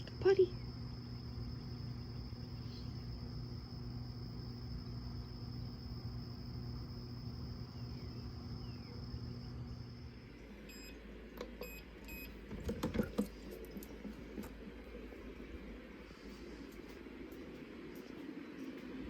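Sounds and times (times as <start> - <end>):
appliance hum and whine: 0.0 - 19.0
short electronic beeps: 11.6 - 12.3.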